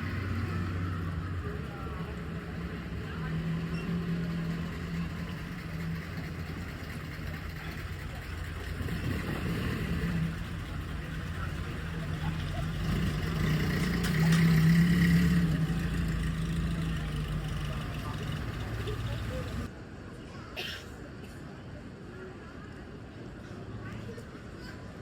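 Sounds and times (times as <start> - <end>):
car engine humming: 0.0 - 19.7
street background noise: 0.0 - 25.0.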